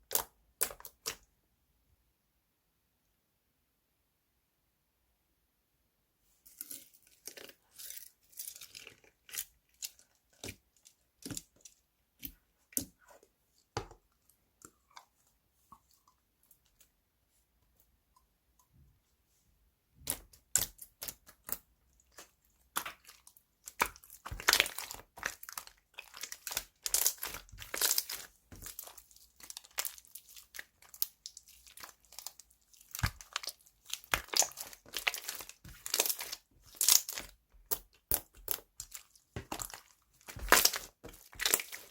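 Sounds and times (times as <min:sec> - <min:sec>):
slime squished crackling and popping: 0:20.0 - 0:41.9.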